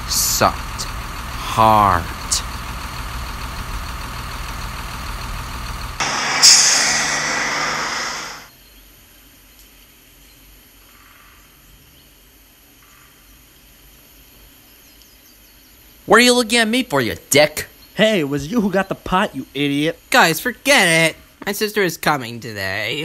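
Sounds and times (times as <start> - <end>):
large vehicle engine rumble: 0.0 - 8.2
air brake hiss: 6.0 - 8.5.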